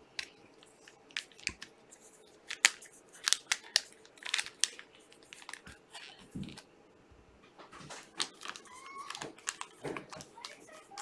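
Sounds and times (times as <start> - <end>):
plastic card packs crinkling: 0.0 - 6.7, 7.6 - 11.0.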